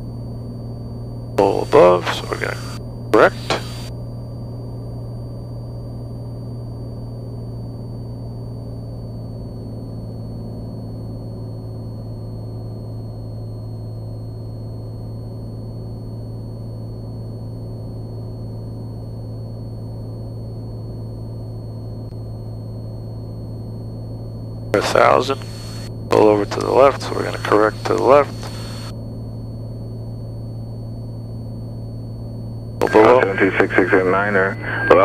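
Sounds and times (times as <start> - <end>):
aircraft engine and propeller drone: 0.0 - 35.0
faint high whines: 0.0 - 35.0.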